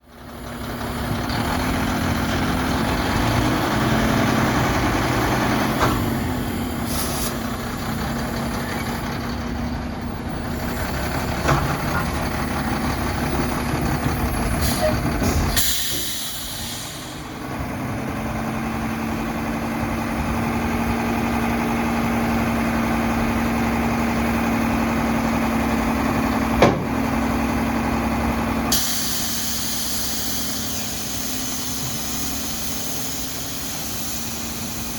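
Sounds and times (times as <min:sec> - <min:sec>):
garbage truck diesel engine whining: 0:00.0 - 0:34.9
air hiss: 0:15.5 - 0:17.3, 0:28.7 - 0:34.9
sharp knock: 0:26.6 - 0:27.0.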